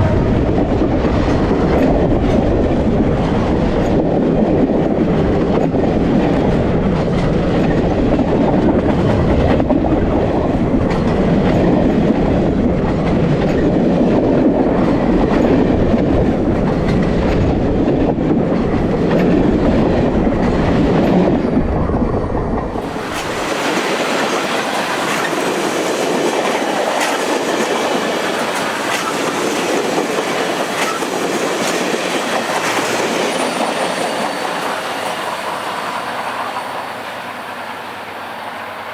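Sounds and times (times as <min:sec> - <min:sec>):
train passing with heavy rumble: 0:00.0 - 0:38.9
wheels clacking over rail joints: 0:22.5 - 0:38.9
hissy rolling sound: 0:22.8 - 0:38.9.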